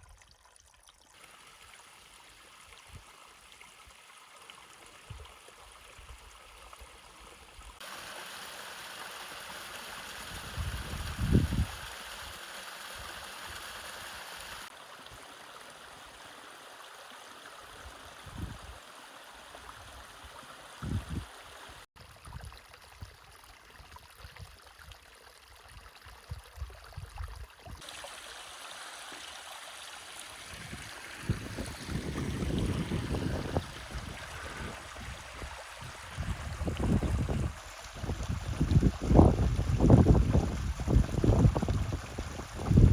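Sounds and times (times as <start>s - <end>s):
stream water rushing: 1.1s - 21.9s, 27.8s - 42.9s.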